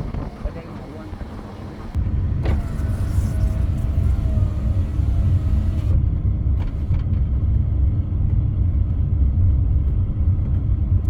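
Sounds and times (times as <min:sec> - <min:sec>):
engine and tyre rumble: 0:00.0 - 0:11.0.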